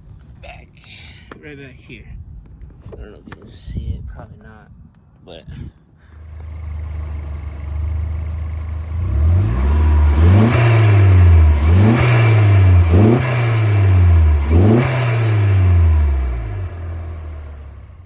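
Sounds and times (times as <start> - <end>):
car engine idling and revving: 6.2 - 18.0.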